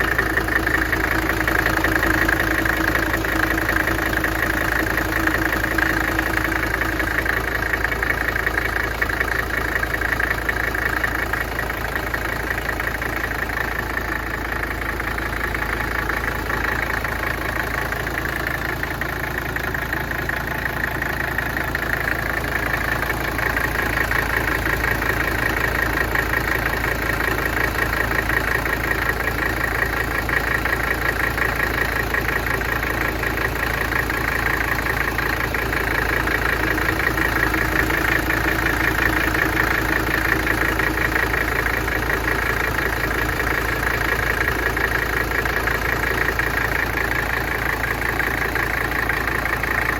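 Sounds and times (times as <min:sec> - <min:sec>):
diesel engine idling: 0:00.0 - 0:49.9.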